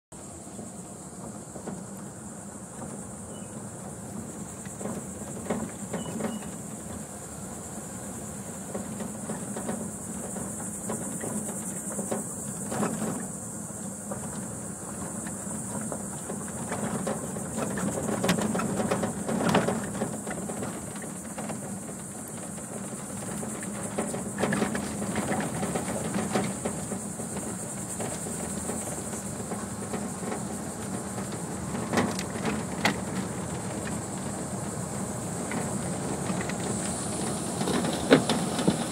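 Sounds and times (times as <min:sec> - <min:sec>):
insects droning: 0:00.2 - 0:38.9
truck knocks and rattles: 0:00.2 - 0:38.9
truck engine hum: 0:22.6 - 0:38.9.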